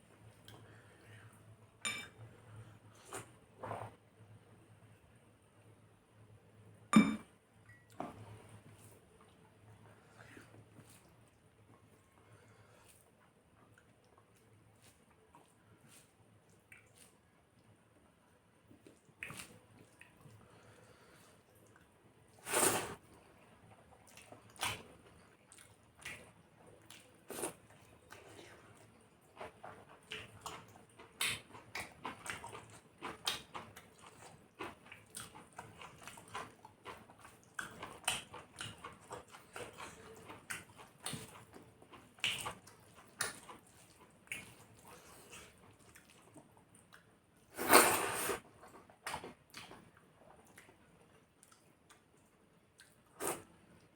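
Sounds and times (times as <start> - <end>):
wet chewing and lip smacks: 29.4 - 47.1, 48.7 - 53.4.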